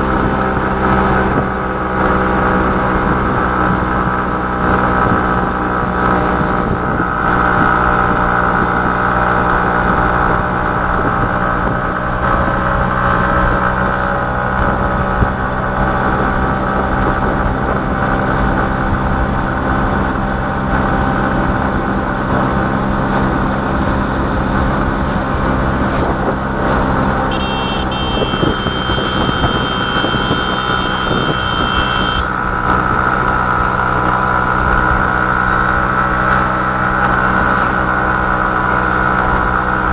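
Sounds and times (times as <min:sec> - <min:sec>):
vehicle engine running: 0:00.0 - 0:39.9
high steady tone: 0:27.3 - 0:32.3.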